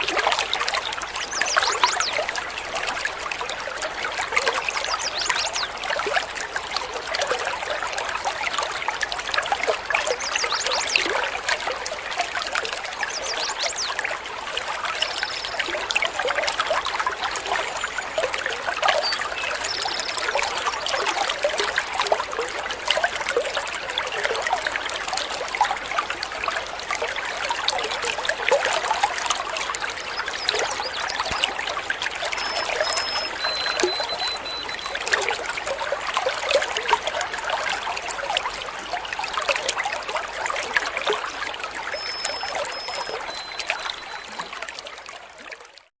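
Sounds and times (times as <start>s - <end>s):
water trickling and splashing: 0.0s - 45.9s
high whistled bird notes: 32.4s - 35.0s.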